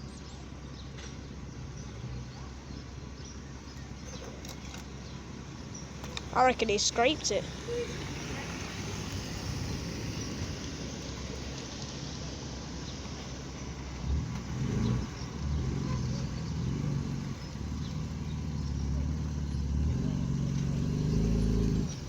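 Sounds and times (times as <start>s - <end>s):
car engine at low revs: 0.0s - 22.0s.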